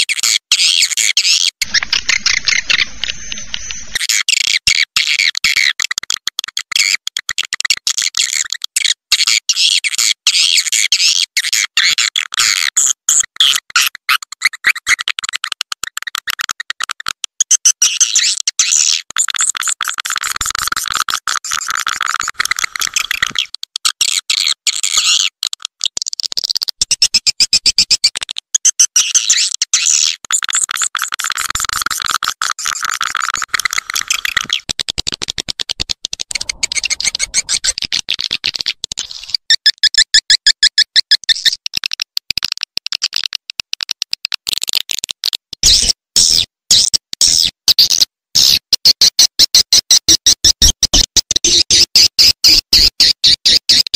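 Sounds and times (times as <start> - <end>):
swiftlet calls chattering: 1.6 - 4.0, 36.3 - 38.0.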